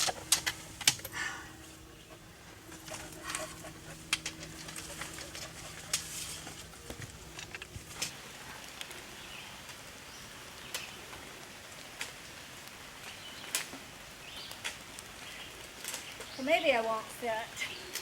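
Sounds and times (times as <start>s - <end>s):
faint low hum: 0.0s - 9.6s
footsteps scrambling over rocks: 2.7s - 8.2s.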